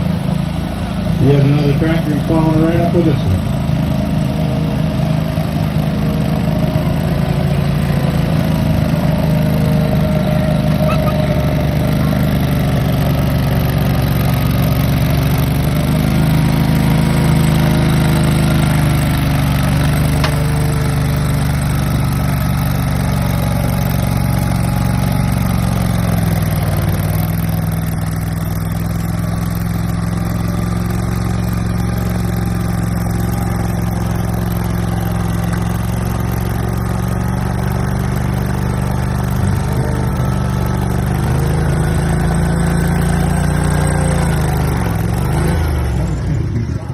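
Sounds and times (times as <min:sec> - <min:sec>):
garden tractor engine running: 0:00.0 - 0:46.9.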